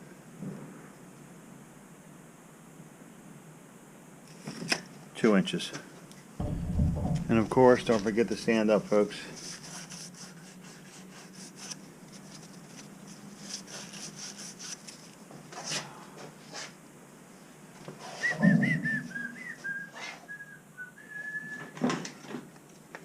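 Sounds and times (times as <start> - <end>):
thump: 6.4 - 8.5
person whistling: 18.2 - 21.7.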